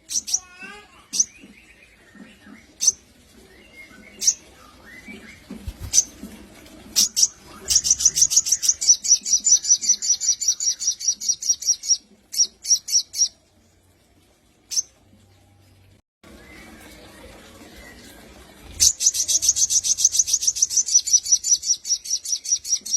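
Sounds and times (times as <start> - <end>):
bird chirping: 7.0 - 13.4, 18.8 - 22.9.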